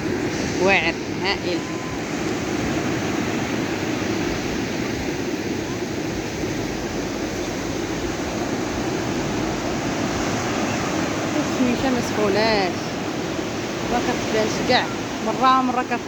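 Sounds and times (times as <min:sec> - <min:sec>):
ocean surf rushing: 0:00.0 - 0:16.0.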